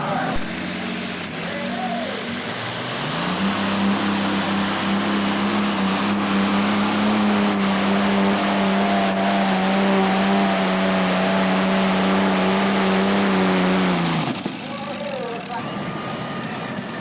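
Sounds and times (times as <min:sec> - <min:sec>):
tractor engine at full throttle: 0:00.0 - 0:17.0.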